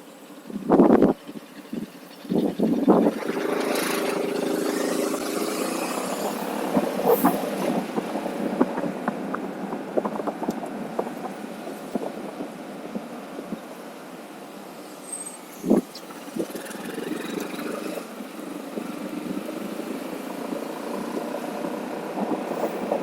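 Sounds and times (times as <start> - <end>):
vehicle engine running: 0.0 - 14.8.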